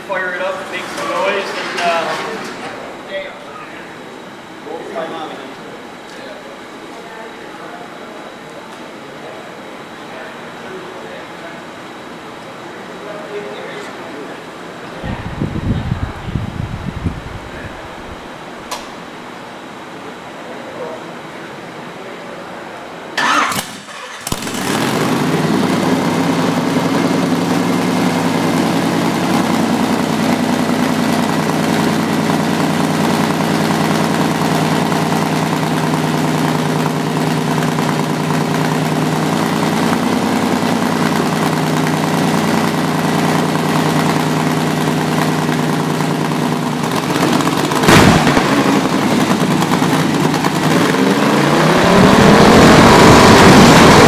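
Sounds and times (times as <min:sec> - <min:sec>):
engine starting and idling: 0:23.2 - 0:54.0
engine revving: 0:24.2 - 0:27.2, 0:47.0 - 0:54.0
sharp crack: 0:47.1 - 0:50.8.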